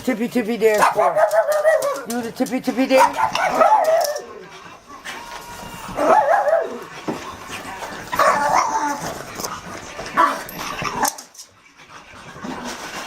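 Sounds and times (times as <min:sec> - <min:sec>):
dog barking and whining: 0:00.7 - 0:02.2, 0:02.9 - 0:07.1, 0:08.0 - 0:09.2, 0:10.2 - 0:11.4.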